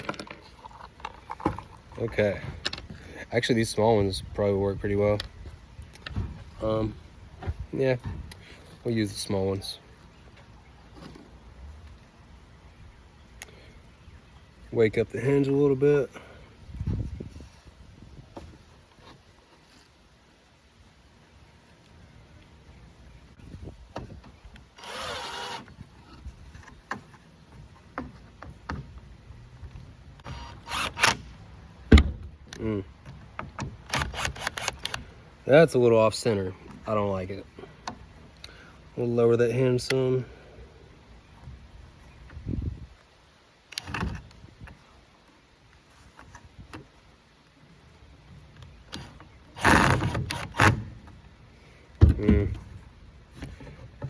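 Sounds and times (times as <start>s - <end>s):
cordless drill running: 24.8s - 25.6s
power drill driving screw: 24.8s - 25.7s, 30.2s - 31.2s.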